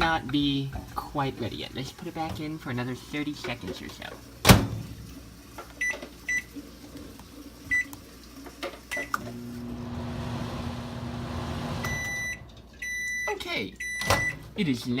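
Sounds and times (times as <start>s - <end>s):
microwave oven humming: 8.9s - 14.5s
microwave door shutting: 9.2s - 12.5s
keypad beeps: 11.8s - 14.4s.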